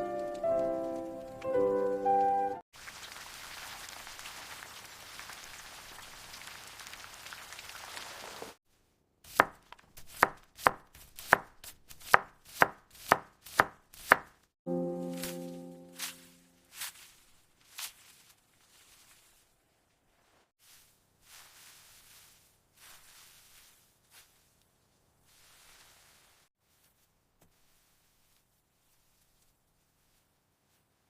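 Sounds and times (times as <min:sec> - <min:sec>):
knife chopping on cutting board: 0:09.3 - 0:14.4.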